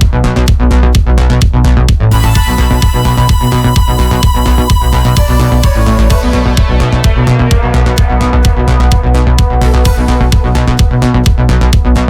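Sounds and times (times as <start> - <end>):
electronic dance music: 2.1 - 7.3.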